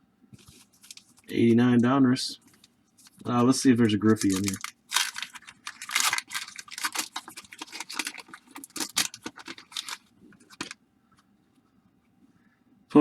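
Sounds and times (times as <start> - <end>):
wax paper wrapper crinkling: 0.4 - 10.8.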